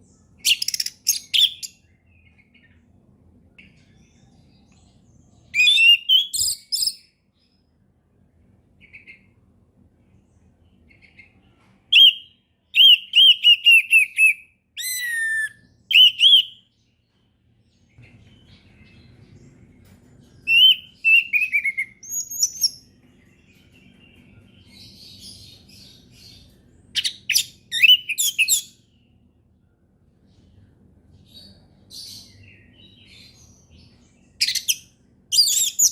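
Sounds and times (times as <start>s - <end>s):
thrush singing whistled phrases: 12.0s - 16.6s, 20.5s - 22.6s
faint low rumble: 16.7s - 21.1s, 28.8s - 35.2s.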